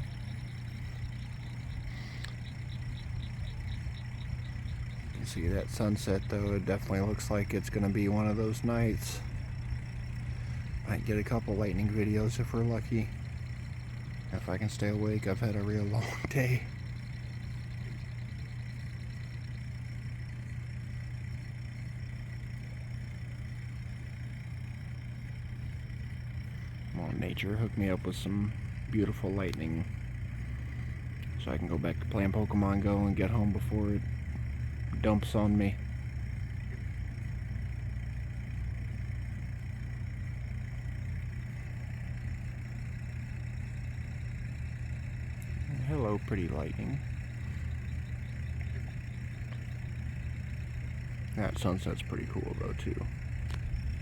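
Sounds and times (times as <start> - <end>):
high-pitched chorus of critters: 0.0 - 24.2, 25.3 - 54.0
fast pulsing tick: 0.0 - 54.0
low machine hum: 0.0 - 54.0.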